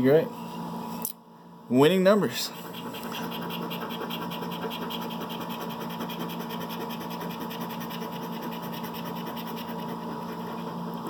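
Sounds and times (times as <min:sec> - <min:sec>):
steady low hum: 0:00.0 - 0:11.0
scratch-off ticket being scratched: 0:02.5 - 0:10.7.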